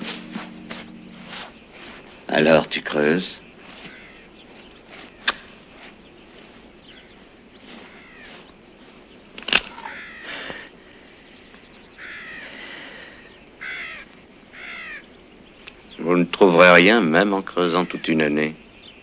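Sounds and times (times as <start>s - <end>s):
bird calling: 0.0s - 19.0s.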